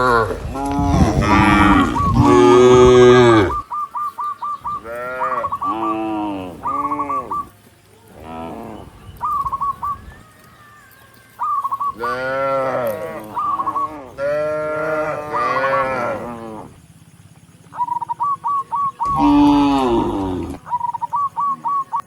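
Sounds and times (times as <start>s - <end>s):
cattle mooing: 0.0s - 3.6s, 4.8s - 7.4s, 12.0s - 16.8s, 19.0s - 20.6s.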